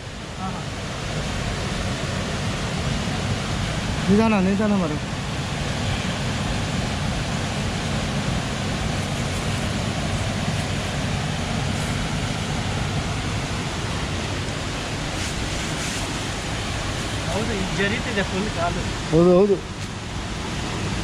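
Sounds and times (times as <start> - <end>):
waterfall and river rushing: 0.0 - 21.0.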